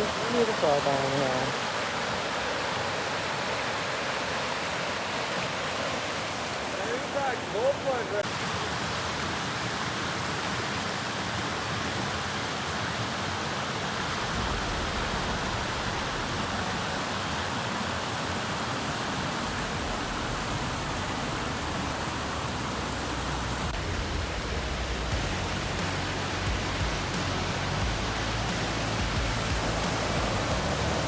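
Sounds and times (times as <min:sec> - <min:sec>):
river rushing: 0:00.0 - 0:31.0
deep low rumble: 0:14.3 - 0:16.8.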